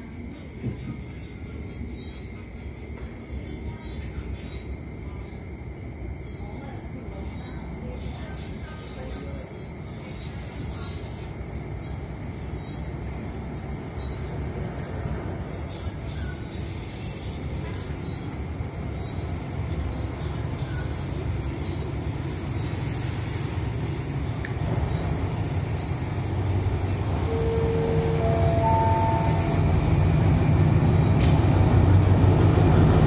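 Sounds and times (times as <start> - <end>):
diesel locomotive engine rumble: 6.8 - 33.0.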